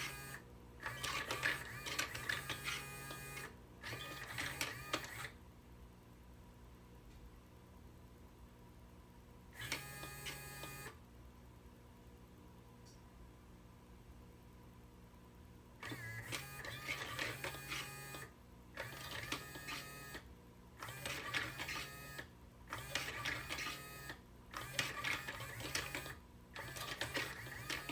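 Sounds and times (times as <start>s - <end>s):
small electric motor humming: 0.0s - 5.3s.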